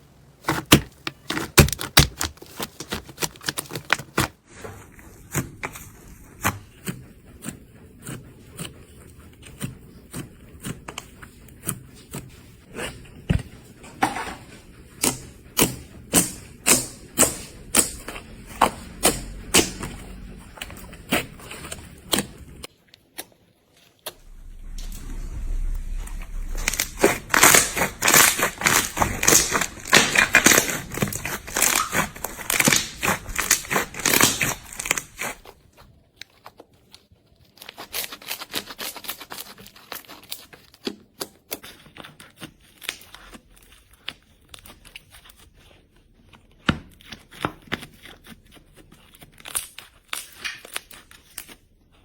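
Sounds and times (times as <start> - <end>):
crunchy slime crackling: 15.0 - 22.7, 24.1 - 36.6.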